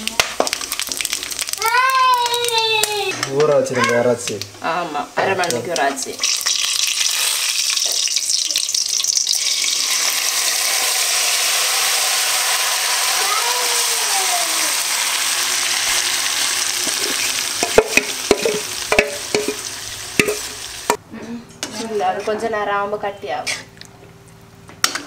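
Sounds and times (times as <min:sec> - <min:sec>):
chicken sizzling in hot oil: 0:00.0 - 0:03.2, 0:05.1 - 0:21.0
spoon scraping and knocking on metal: 0:16.8 - 0:19.6, 0:20.2 - 0:21.0.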